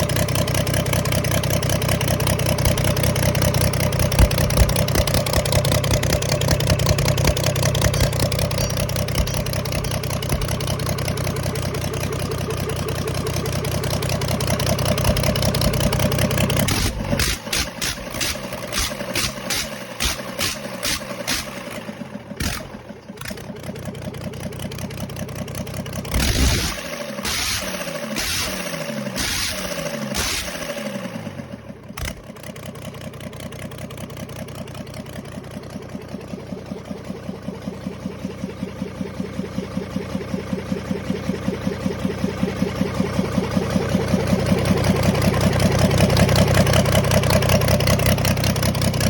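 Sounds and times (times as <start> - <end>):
diesel engine running: 0.0 - 49.0
irregular knocks and clatter: 4.0 - 5.4, 6.7 - 11.0.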